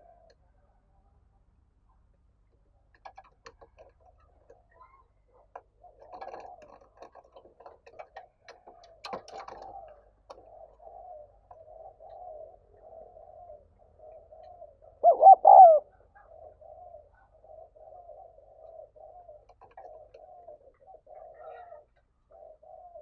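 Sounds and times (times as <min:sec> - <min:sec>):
dove cooing: 0:00.0 - 0:00.4, 0:05.4 - 0:23.0.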